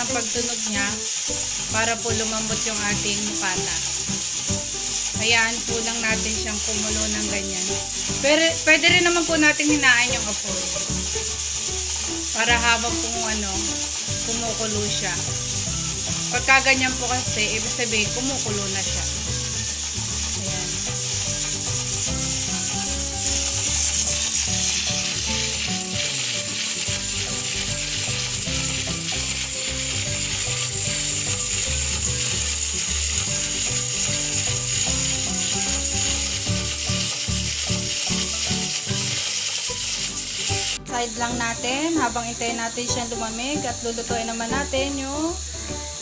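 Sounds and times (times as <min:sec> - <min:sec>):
pressure cooker valve rattling: 0:00.0 - 0:46.0
steam hissing: 0:00.0 - 0:46.0.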